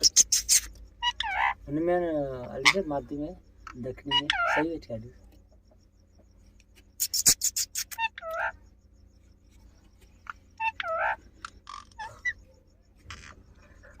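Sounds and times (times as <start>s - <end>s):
parrot speech-like calls: 4.0s - 4.7s.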